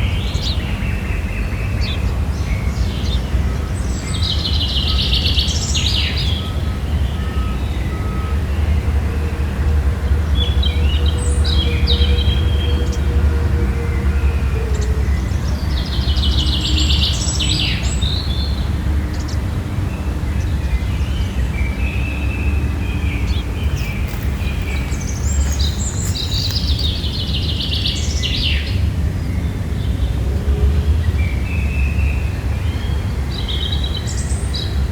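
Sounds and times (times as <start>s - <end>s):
songbird singing: 13.8s - 30.1s
steady low rumble: 21.3s - 28.4s.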